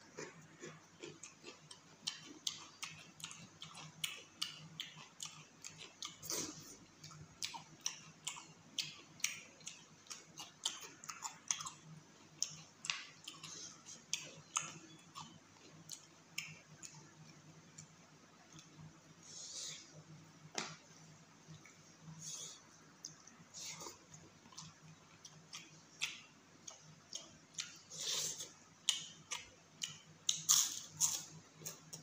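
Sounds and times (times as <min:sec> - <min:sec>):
faint low hum: 0:00.0 - 0:32.0
wet chewing and lip-smacking: 0:00.1 - 0:18.8, 0:22.9 - 0:32.0.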